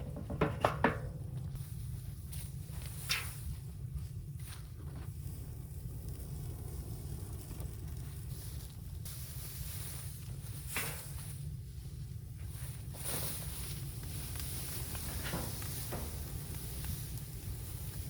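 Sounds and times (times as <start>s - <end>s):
faint knocks or rustles: 0.0s - 1.6s, 13.0s - 17.1s.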